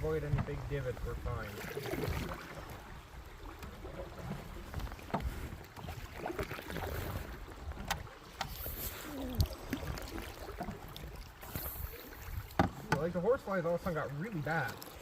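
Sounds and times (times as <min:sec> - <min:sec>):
paddle strokes splashing: 0:00.0 - 0:15.0
rumbling water: 0:00.0 - 0:15.0
knocks against canoe: 0:00.2 - 0:00.6, 0:03.6 - 0:06.0, 0:12.5 - 0:13.1.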